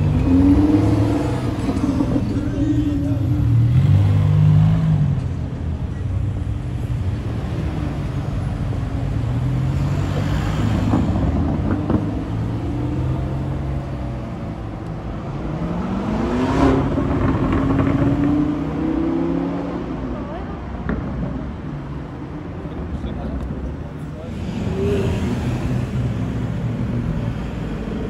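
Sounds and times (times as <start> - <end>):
car accelerating: 0.0 - 5.4, 7.2 - 20.2.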